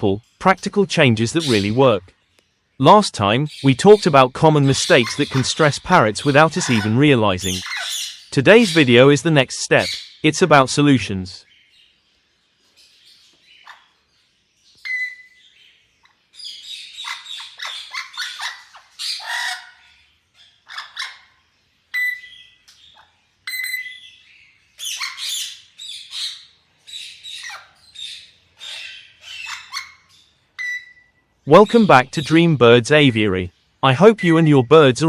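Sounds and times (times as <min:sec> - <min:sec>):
parrots screeching and chirping: 0:01.3 - 0:01.9, 0:03.5 - 0:08.8, 0:09.8 - 0:10.2, 0:12.8 - 0:32.4
parrot whistles: 0:14.8 - 0:15.4, 0:22.0 - 0:22.4, 0:23.5 - 0:24.0, 0:30.6 - 0:31.2.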